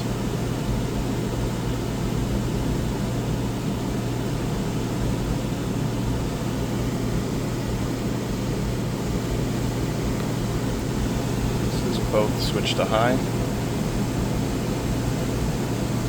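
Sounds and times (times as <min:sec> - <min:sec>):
air conditioners humming: 0:00.0 - 0:16.0
blower air rushing: 0:06.5 - 0:16.0.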